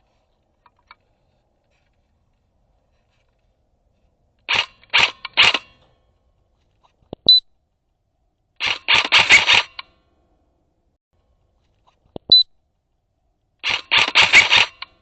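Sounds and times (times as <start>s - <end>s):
airsoft gun bursts: 4.5s - 5.8s, 8.6s - 9.8s, 13.6s - 15.0s.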